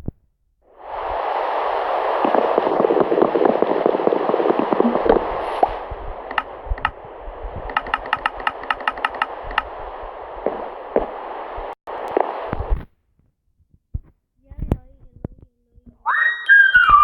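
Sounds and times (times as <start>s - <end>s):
heavy rain falling: 0.8s - 12.7s
sharp ticks: 2.2s - 12.6s.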